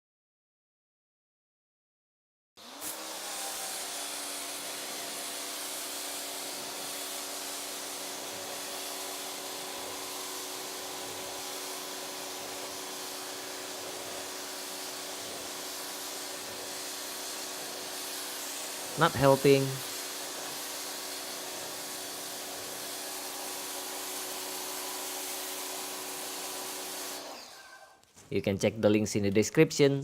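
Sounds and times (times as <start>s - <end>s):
pressure washer motor humming: 2.7s - 27.9s
foam lance spraying hiss: 12.5s - 27.3s.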